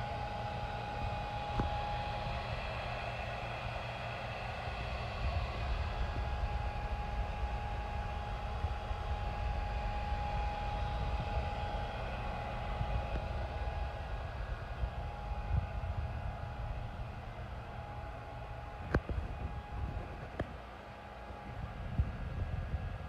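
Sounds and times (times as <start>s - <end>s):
thin steady whine: 0.0s - 23.0s.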